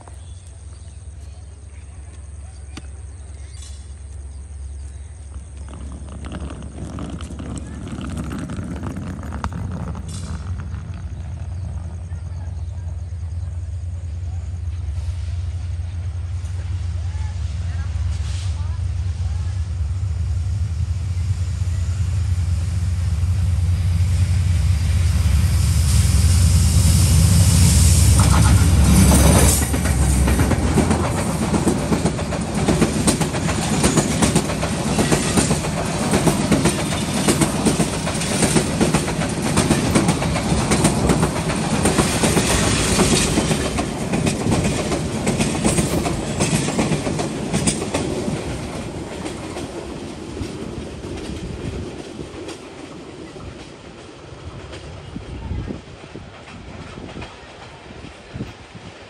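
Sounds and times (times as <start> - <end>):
diesel locomotive engine hum: 0.0 - 59.0
wheels clattering over rail joints: 4.7 - 12.8, 28.0 - 54.9.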